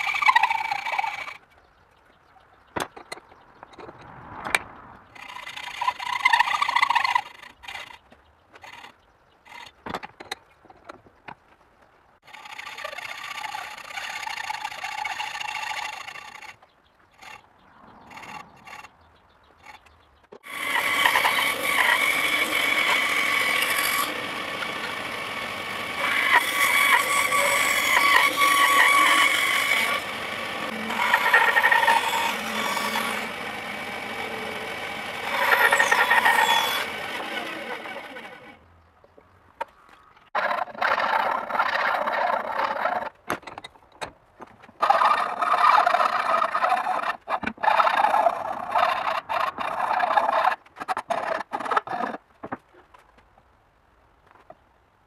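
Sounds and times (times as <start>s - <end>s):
power tool grinding with squealing whine: 0.0s - 1.4s, 5.1s - 8.0s, 12.2s - 16.6s, 17.2s - 18.9s, 19.6s - 38.6s, 44.8s - 52.2s.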